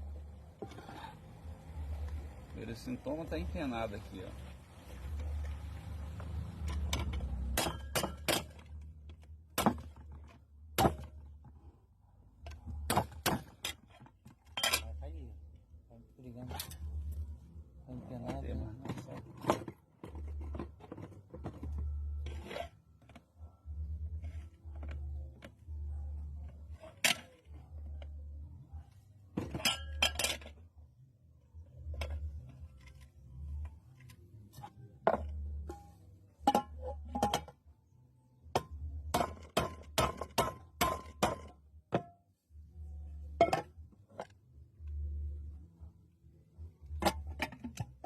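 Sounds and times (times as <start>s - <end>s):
metal parts clinking and knocking: 13.5s - 15.0s.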